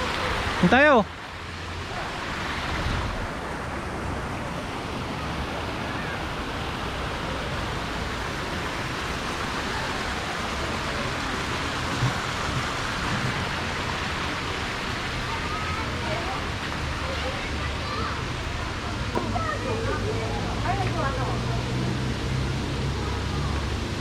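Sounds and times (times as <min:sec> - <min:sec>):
steady rushing noise: 0:00.0 - 0:24.0
faint flickering rumble: 0:10.0 - 0:19.8.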